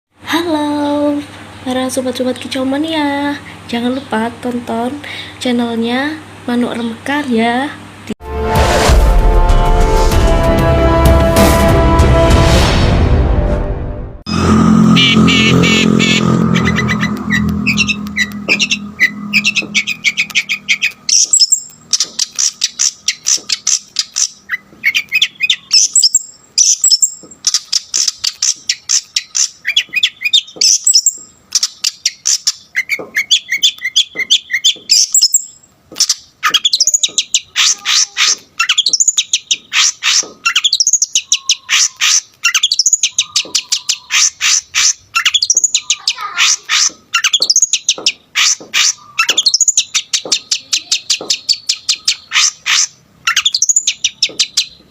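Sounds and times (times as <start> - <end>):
bird singing chattering notes: 14.9 - 54.9.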